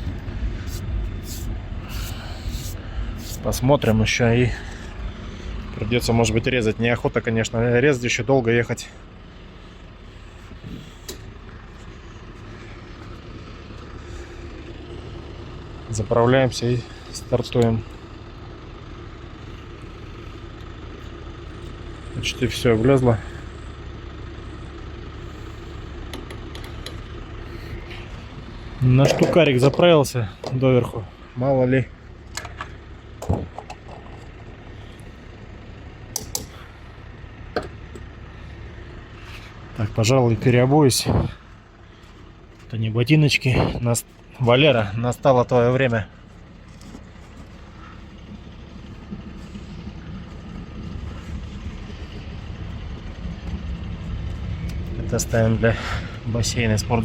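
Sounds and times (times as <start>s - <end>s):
idling vehicle engines hum: 0.0s - 57.0s
sharp clicks and knocks: 26.1s - 27.0s, 36.1s - 36.6s.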